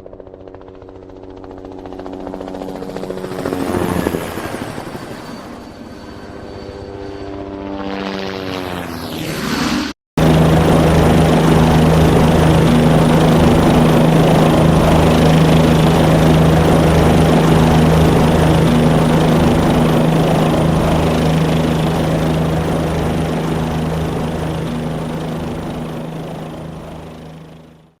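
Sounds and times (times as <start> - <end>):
helicopter engine and rotor: 0.0 - 28.0
falling-pitch engine sound: 6.1 - 26.7.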